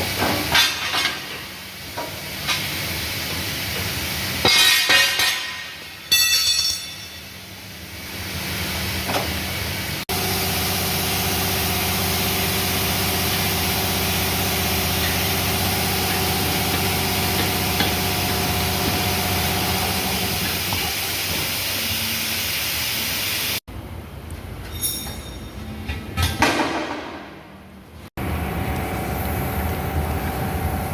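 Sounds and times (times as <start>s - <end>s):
motor running: 10.1s - 21.2s.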